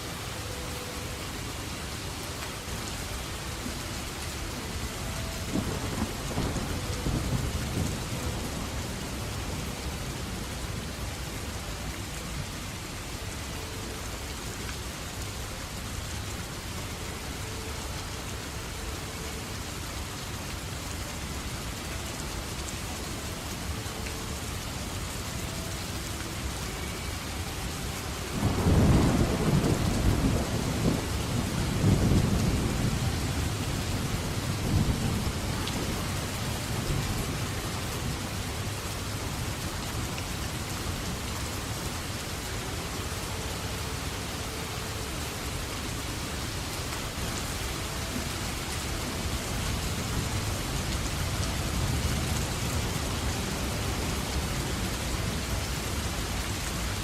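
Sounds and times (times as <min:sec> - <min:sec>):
heavy rain: 0:00.0 - 0:57.0
thunder rumbling: 0:05.0 - 0:09.7, 0:28.3 - 0:38.6.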